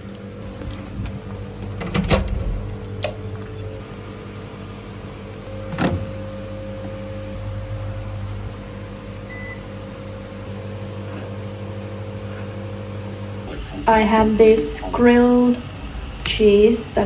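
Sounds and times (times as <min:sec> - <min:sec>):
electric appliance humming: 0:00.0 - 0:17.0.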